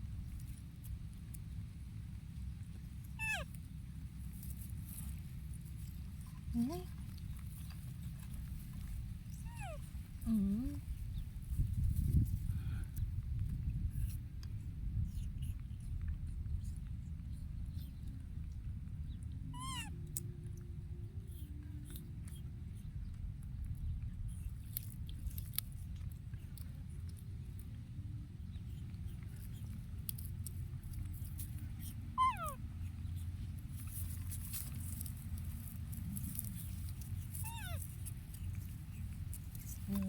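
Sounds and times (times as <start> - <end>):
steady low rumble: 0.0 - 40.0
young animal squeaky calls: 3.1 - 3.5, 9.4 - 9.9, 19.5 - 20.0, 31.8 - 33.4, 37.3 - 39.1.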